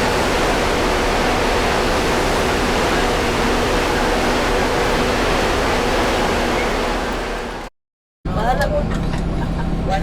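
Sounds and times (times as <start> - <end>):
loud rushing noise: 0.0 - 7.7.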